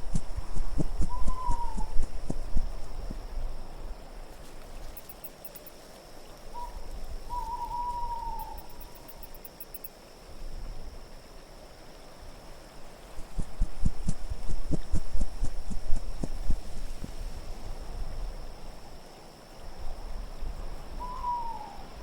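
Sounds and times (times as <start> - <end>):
low wind rumble: 0.0 - 5.0, 12.3 - 18.9
owl hooting: 0.1 - 2.7, 6.5 - 9.2, 21.0 - 22.0
faint high tinkling: 4.8 - 5.8.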